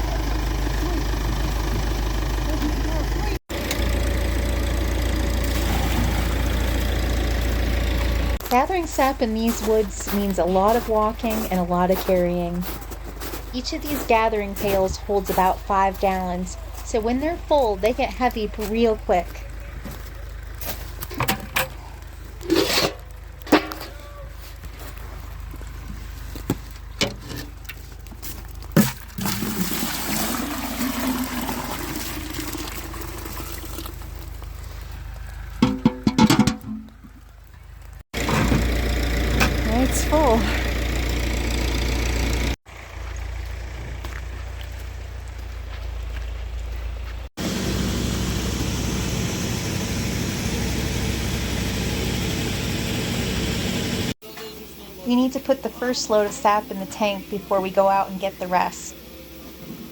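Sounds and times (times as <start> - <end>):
engine idling: 0.0 - 29.6, 32.4 - 59.9
sap pouring into metal pail: 28.8 - 34.2
buckets knocking: 35.6 - 37.2.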